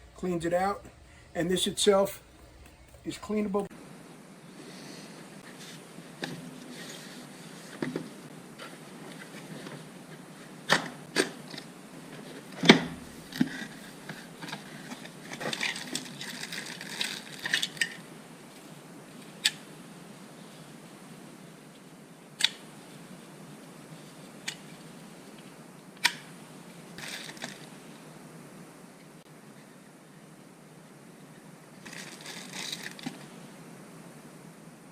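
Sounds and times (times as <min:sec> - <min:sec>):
rustling and scraping: 0:05.4 - 0:10.4, 0:31.8 - 0:33.4.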